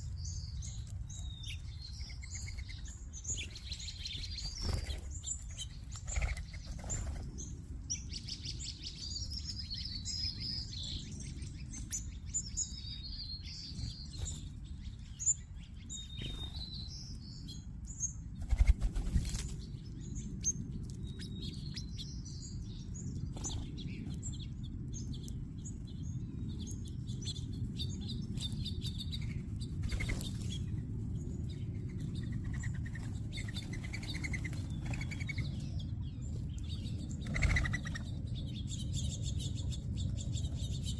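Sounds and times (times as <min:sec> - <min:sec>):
small songbirds chirping: 0:00.0 - 0:40.9
steady low rumble: 0:00.0 - 0:40.9
wing flutters: 0:18.4 - 0:19.6.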